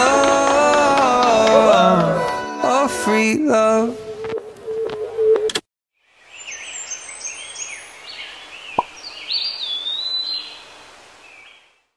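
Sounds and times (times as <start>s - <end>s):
faint outdoor hiss: 6.0s - 11.9s
birds chirping: 6.2s - 11.9s.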